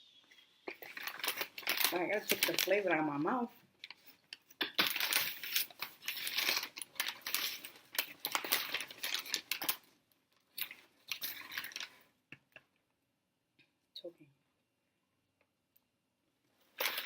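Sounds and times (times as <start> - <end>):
paper bags rustling and crinkling: 0.7 - 3.3, 3.9 - 9.9, 10.5 - 12.1, 16.7 - 17.0.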